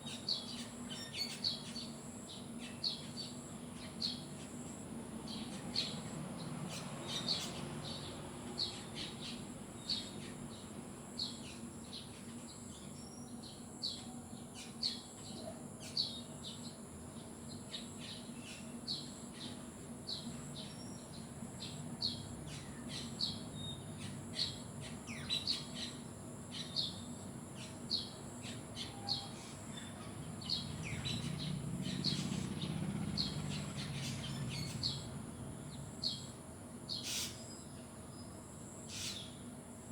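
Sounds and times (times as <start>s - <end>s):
birds chirping: 26.6s - 36.3s.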